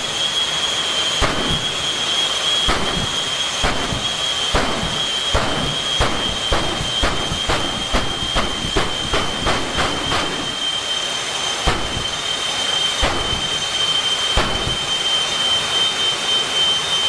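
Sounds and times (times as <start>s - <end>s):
turbine engine high-pitched whine: 0.0s - 17.0s
sharp pops: 1.2s - 1.9s, 2.7s - 10.6s, 11.7s - 12.2s, 13.0s - 13.8s, 14.4s - 15.0s.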